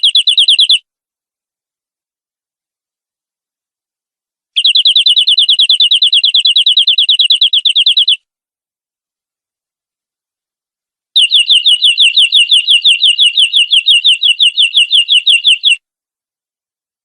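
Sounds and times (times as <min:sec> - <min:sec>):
canary singing fast trill: 0:00.0 - 0:00.9, 0:04.6 - 0:08.3, 0:11.2 - 0:15.8.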